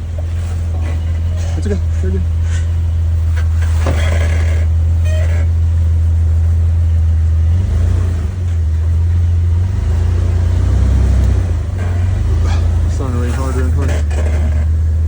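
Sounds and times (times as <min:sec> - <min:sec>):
engine running at low revs: 0:00.0 - 0:15.0.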